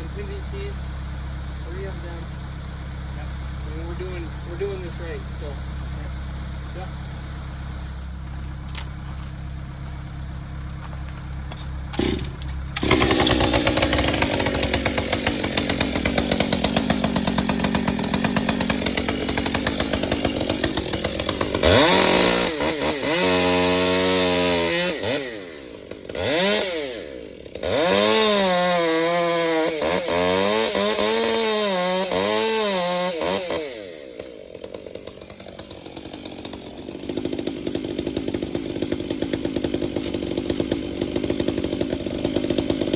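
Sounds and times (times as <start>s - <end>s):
low engine hum: 0.0s - 22.6s
chainsaw revving: 11.9s - 42.9s.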